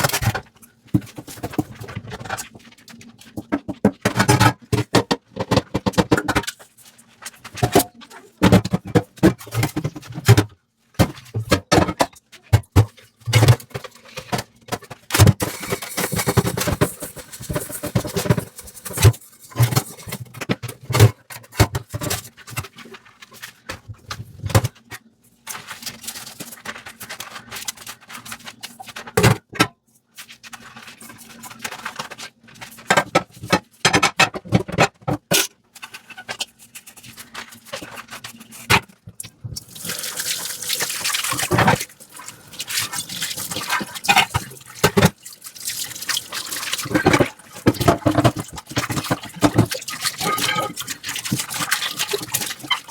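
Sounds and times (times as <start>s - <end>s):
water rushing from tap: 39.6s - 52.9s
water splashing: 39.7s - 52.9s
sponge scrubbing: 39.9s - 52.9s
dishes clinking: 50.2s - 50.9s.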